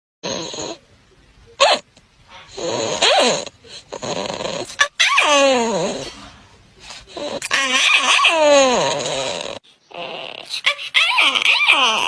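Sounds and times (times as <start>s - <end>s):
animal calling: 7.1s - 12.0s.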